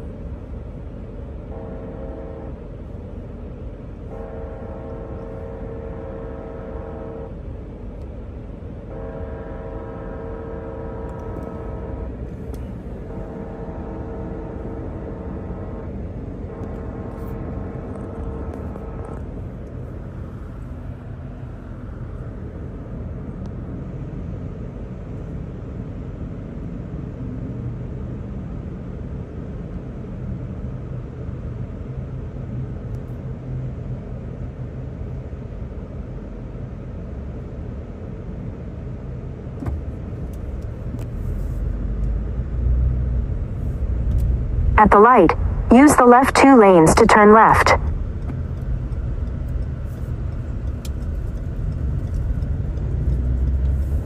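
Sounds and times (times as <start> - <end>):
freight train rumbling: 0.0 - 54.0
locomotive horn blasts: 1.4 - 2.8, 4.0 - 7.6, 8.8 - 19.2.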